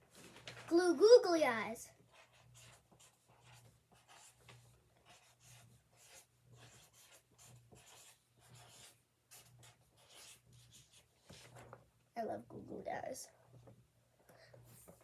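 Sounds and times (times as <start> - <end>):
pen scratching on paper: 1.9 - 11.8.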